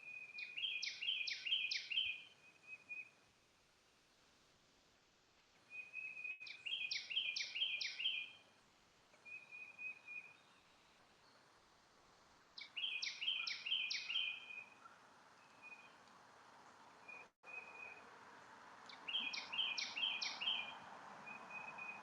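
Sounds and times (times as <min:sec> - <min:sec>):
songbird singing: 0:00.0 - 0:04.1, 0:05.4 - 0:22.0
soft bird call: 0:09.2 - 0:10.7, 0:12.6 - 0:16.1, 0:18.9 - 0:22.0.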